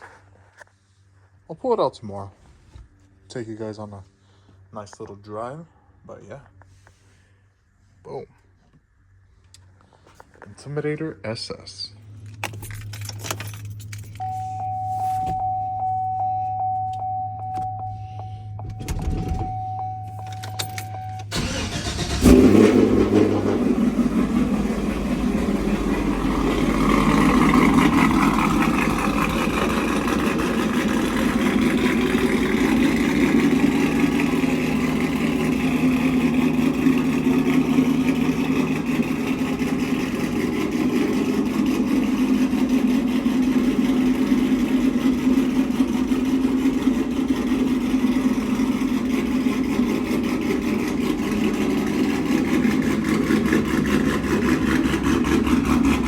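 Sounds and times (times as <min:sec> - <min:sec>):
pickup engine idling: 0:13.7 - 0:56.0.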